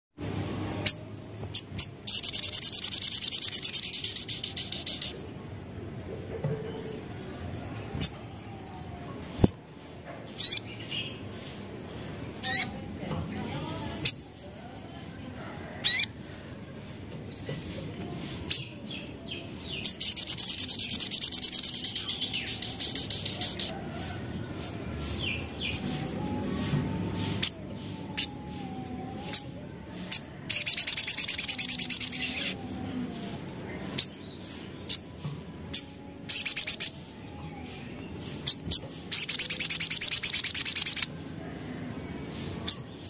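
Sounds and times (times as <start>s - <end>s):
rapid high-pitched bird notes: 0.5s - 5.2s, 19.7s - 24.1s, 30.5s - 32.6s, 33.4s - 37.1s, 38.2s - 41.2s
bird chips and trill: 0.8s - 5.1s, 35.8s - 37.0s, 38.5s - 41.1s.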